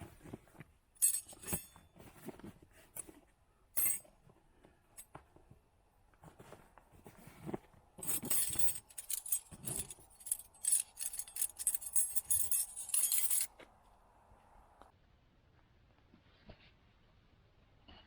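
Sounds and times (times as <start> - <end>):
small hard objects clinking: 1.0 - 1.8, 8.0 - 13.5.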